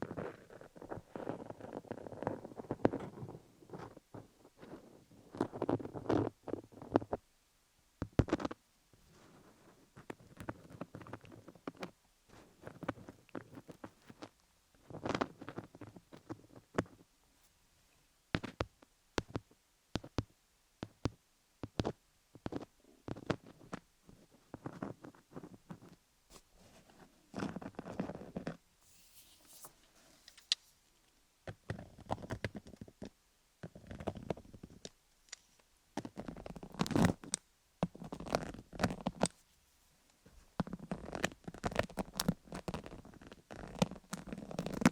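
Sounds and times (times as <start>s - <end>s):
fingernails scratching microphone: 22.5s - 30.6s.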